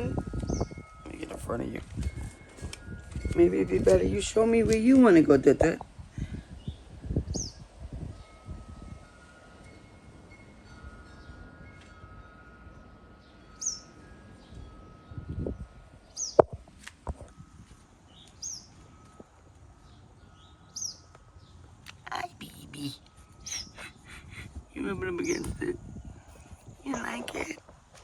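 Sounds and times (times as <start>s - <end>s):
bird chirping: 13.2s - 15.2s, 16.0s - 16.5s, 18.1s - 19.1s, 19.8s - 27.6s.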